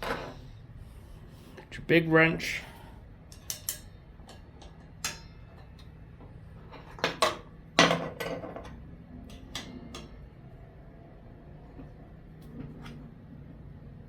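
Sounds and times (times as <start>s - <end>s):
sharp metal clanks with ring: 5.0s - 5.6s.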